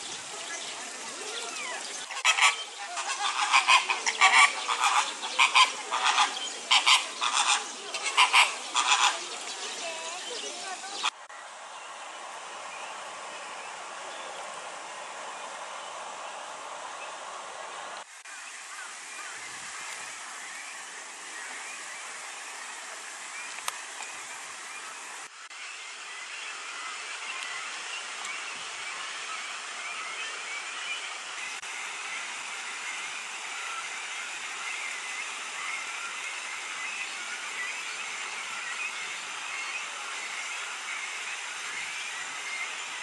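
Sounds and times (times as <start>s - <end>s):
birds calling loudly: 0.0s - 11.2s
steady outdoor hiss: 0.0s - 43.0s.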